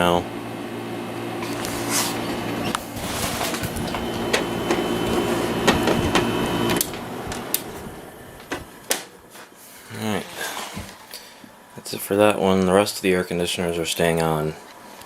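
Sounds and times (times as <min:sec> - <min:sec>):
air conditioner hum: 0:00.0 - 0:15.0.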